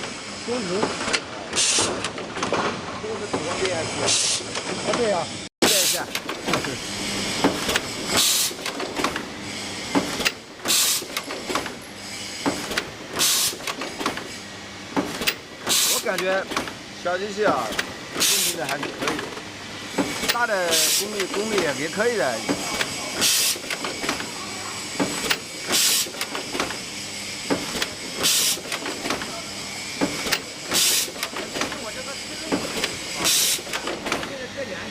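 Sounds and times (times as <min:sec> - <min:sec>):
machine metallic clicks and knocks: 0:00.8 - 0:02.8
machine clicks and knocks: 0:00.8 - 0:03.8, 0:05.7 - 0:06.8, 0:07.4 - 0:09.3, 0:09.9 - 0:11.8, 0:12.4 - 0:14.3, 0:14.9 - 0:16.8, 0:17.4 - 0:21.8, 0:22.4 - 0:24.3, 0:25.0 - 0:26.8, 0:27.4 - 0:29.3, 0:30.0 - 0:34.4
welding machine hiss: 0:01.5 - 0:02.0, 0:03.5 - 0:08.7, 0:09.4 - 0:14.4, 0:15.3 - 0:16.4, 0:17.2 - 0:18.9, 0:19.8 - 0:34.7.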